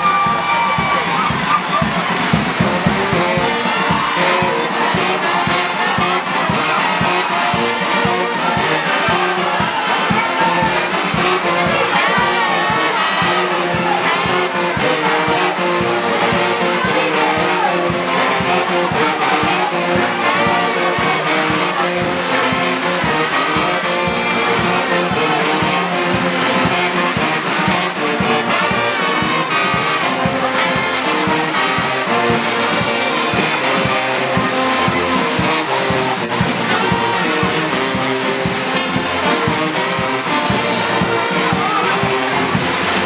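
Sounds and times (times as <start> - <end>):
brass band holding notes: 0.0 - 43.0.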